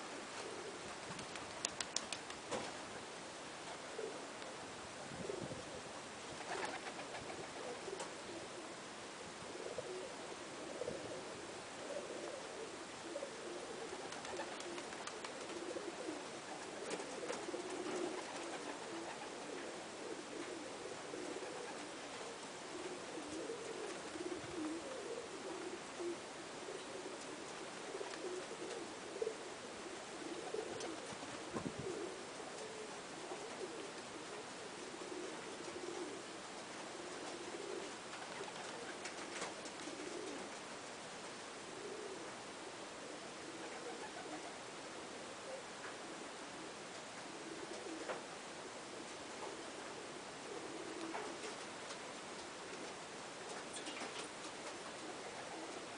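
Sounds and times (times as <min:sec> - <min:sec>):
pigeons cooing: 0:00.0 - 0:55.9
steady hiss: 0:00.0 - 0:55.9
faint clicks: 0:01.1 - 0:02.7.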